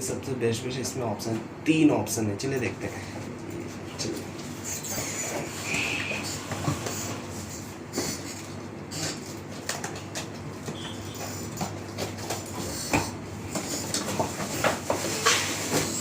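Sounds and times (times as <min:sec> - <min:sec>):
cardboard and plastic packaging rustling: 0:13.6 - 0:16.0.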